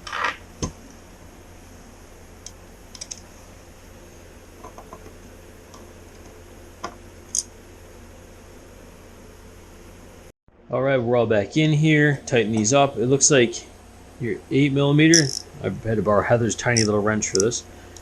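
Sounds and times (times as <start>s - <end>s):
faint low hum: 0.0s - 18.0s
small metal parts clicking: 2.4s - 3.2s, 15.1s - 15.4s, 16.8s - 18.0s.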